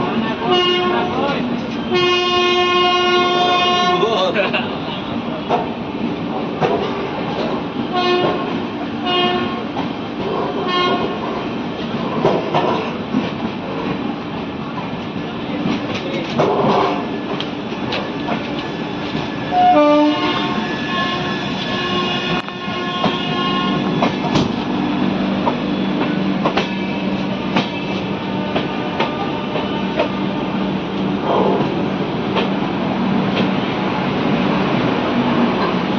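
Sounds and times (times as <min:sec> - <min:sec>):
train wheels rumbling and clattering: 0:00.0 - 0:35.9
train horn blasts: 0:00.5 - 0:01.1, 0:01.9 - 0:04.0, 0:07.9 - 0:09.7, 0:10.6 - 0:11.2, 0:19.5 - 0:24.2, 0:28.2 - 0:30.1.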